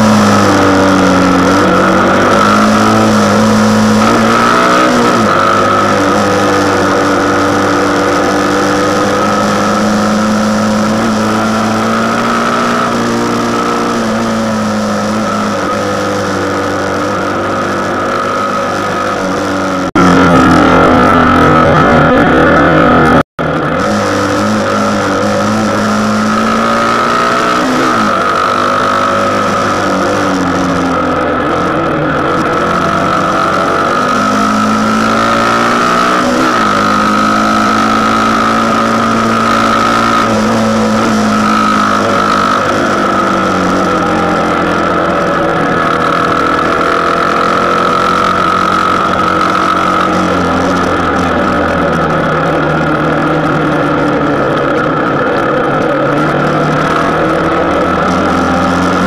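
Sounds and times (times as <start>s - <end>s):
motorcycle engine revving: 0.0s - 59.0s
steady high whine: 0.0s - 59.0s.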